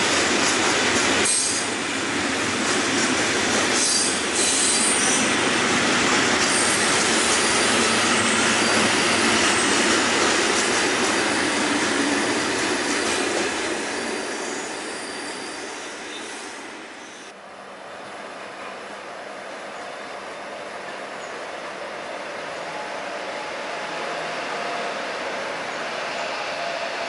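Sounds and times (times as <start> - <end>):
freight train rolling past: 0.0 - 27.0.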